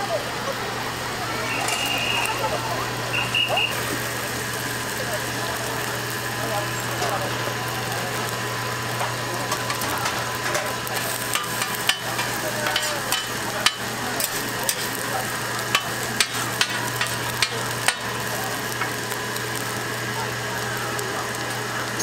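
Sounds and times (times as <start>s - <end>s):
pancakes sizzling in oil: 1.0s - 22.0s
metal spatula knocking on griddle: 15.7s - 18.0s.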